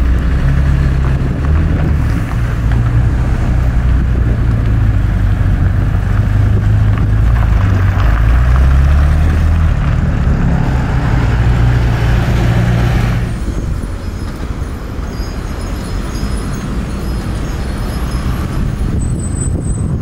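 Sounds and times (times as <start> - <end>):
car engine driving past: 7.4 - 13.6.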